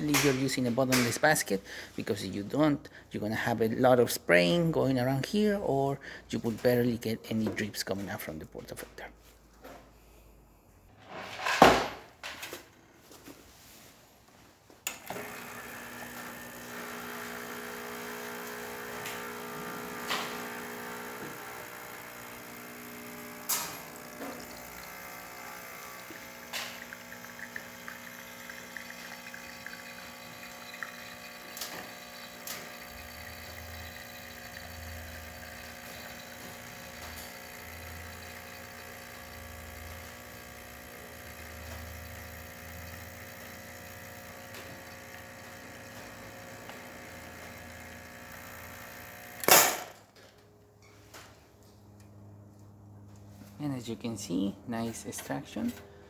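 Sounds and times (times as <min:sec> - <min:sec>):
espresso machine pump humming: 0:14.9 - 0:50.0.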